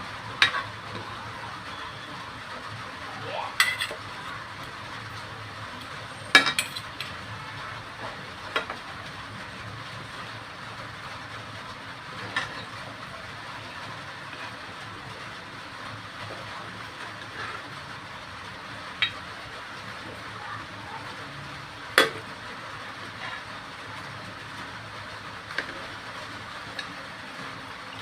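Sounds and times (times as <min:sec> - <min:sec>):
food sizzling in a pan: 0:00.1 - 0:28.0.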